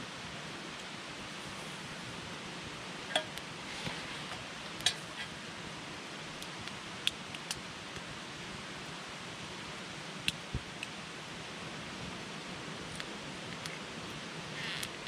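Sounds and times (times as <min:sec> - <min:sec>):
campfire crackling and popping: 0:06.3 - 0:08.1.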